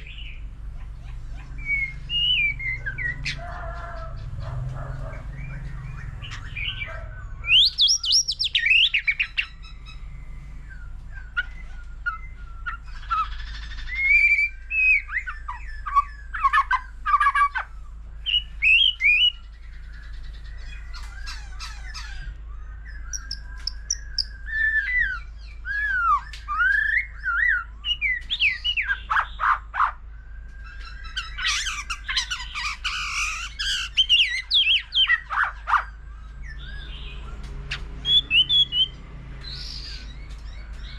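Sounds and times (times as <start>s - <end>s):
bird singing whistled phrases: 1.6s - 3.3s, 6.0s - 29.5s, 38.0s - 39.0s.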